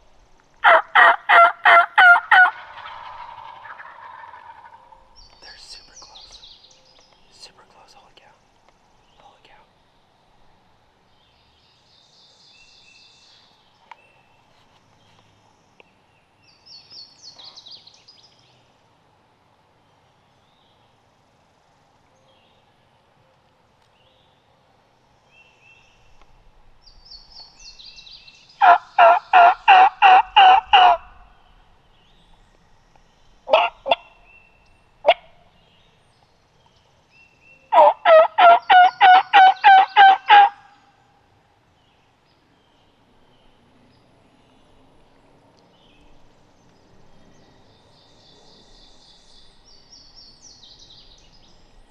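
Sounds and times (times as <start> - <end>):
songbird chirps: 0.0 - 51.9
turkey call yelps: 0.6 - 5.0, 28.6 - 31.3, 33.5 - 34.2, 35.0 - 35.4, 37.7 - 40.8.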